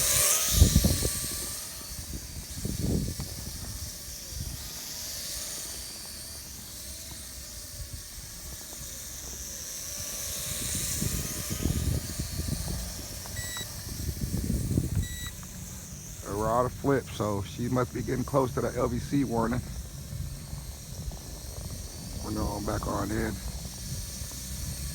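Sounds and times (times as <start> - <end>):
drone propellers buzzing: 0.0 - 24.9
low rumbling noise: 11.0 - 24.9
short electronic beep: 13.4 - 13.7, 15.0 - 15.4.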